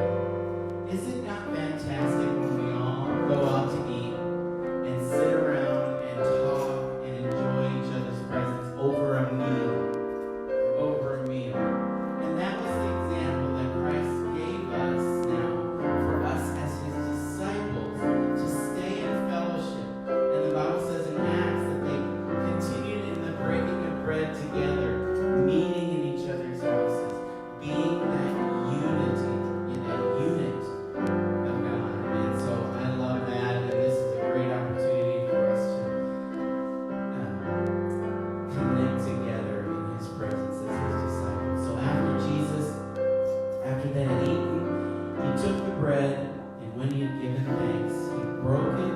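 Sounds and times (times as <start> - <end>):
slow instrumental piano music: 0.0 - 48.9.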